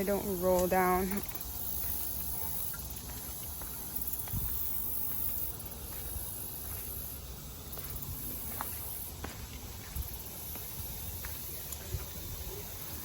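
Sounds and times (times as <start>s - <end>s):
high insect chorus: 0.0s - 13.0s
wind rumble on microphone: 4.2s - 4.7s.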